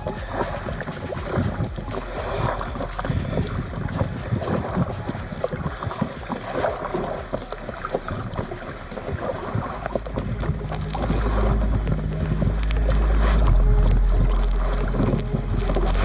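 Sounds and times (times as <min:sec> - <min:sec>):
paddle water splashes: 0:00.0 - 0:13.4
wind rumble on microphone: 0:00.0 - 0:16.0.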